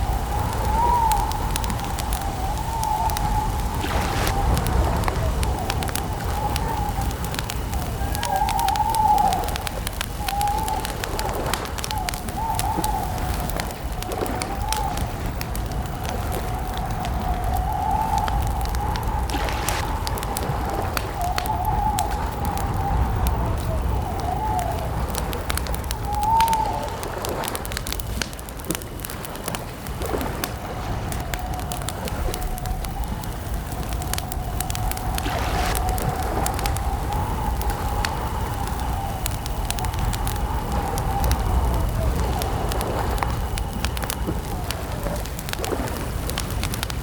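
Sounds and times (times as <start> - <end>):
campfire crackling and popping: 0.0 - 47.0
low rumble: 10.7 - 28.0, 30.1 - 46.9.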